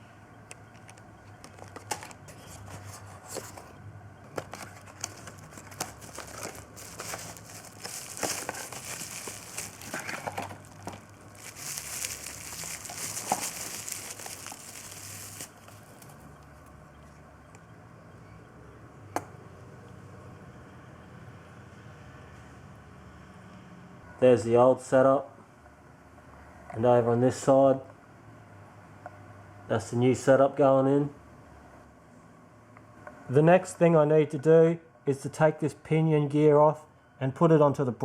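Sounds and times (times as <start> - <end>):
faint low hum: 0.0 - 24.4
plastic packaging crinkling: 0.8 - 3.6, 4.3 - 16.7.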